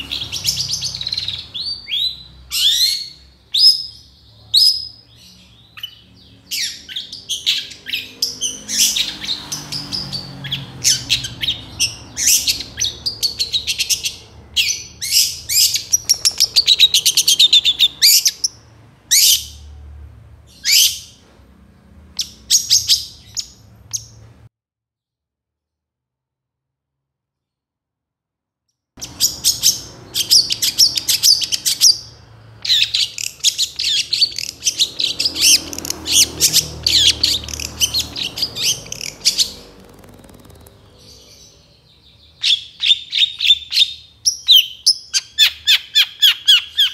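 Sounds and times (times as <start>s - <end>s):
shrike singing: 10.9s - 18.6s
rattling bird call: 32.7s - 41.5s.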